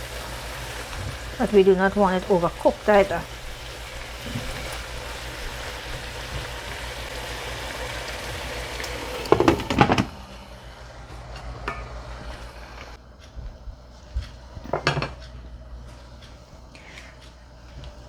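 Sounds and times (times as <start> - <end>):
beans sizzling in frying pan: 0.0 - 13.0
lid and utensil clattering on pot: 14.7 - 15.2.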